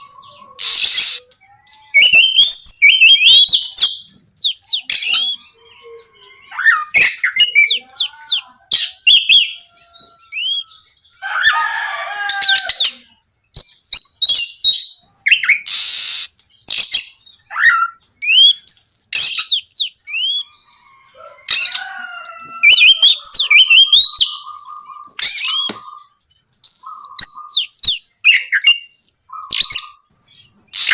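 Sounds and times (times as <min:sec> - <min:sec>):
bird singing whistled notes: 0:00.6 - 0:08.1, 0:13.5 - 0:20.5, 0:21.7 - 0:26.0, 0:26.6 - 0:30.9.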